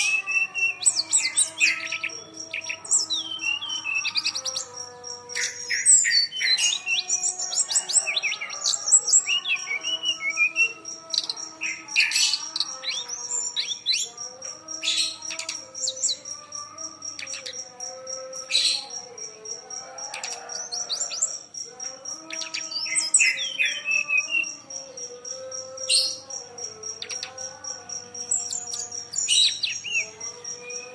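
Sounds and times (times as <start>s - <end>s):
songbird chirping and whistling: 0.0s - 16.3s, 22.3s - 24.7s, 28.4s - 30.9s.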